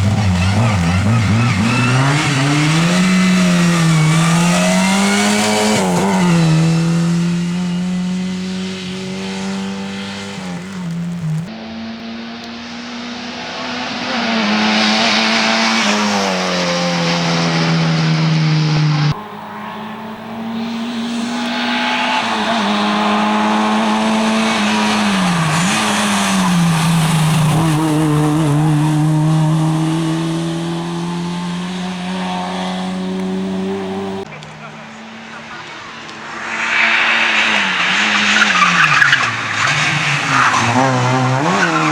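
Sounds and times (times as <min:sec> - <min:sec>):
tyre noise: 0:00.0 - 0:11.5, 0:19.1 - 0:34.3
rally car engine at high revs: 0:00.0 - 0:41.9.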